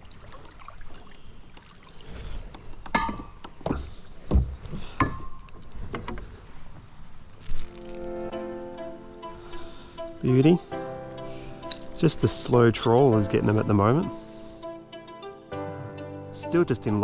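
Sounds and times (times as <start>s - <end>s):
water splashing: 0.0s - 3.9s
knocks and thumps on a kayak: 2.6s - 6.4s.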